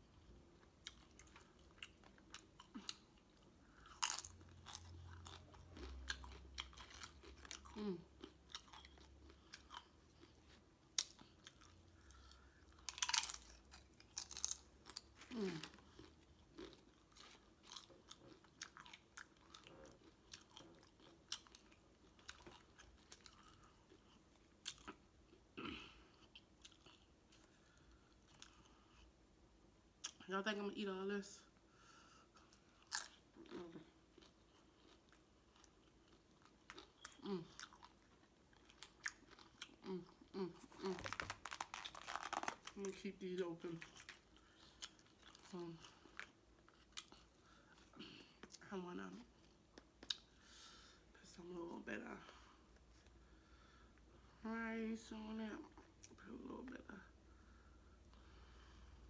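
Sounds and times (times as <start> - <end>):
person chewing food: 0.0 - 29.2, 32.1 - 42.8, 43.8 - 48.6, 49.3 - 51.0.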